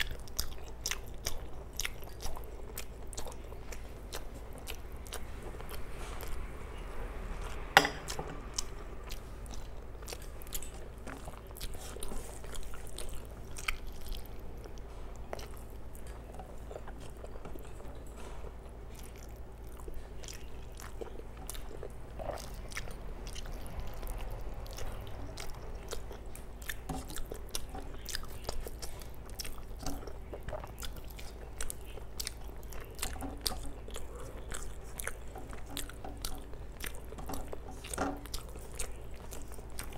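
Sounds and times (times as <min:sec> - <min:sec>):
wet chewing and mouth clicks: 0:00.0 - 0:39.9.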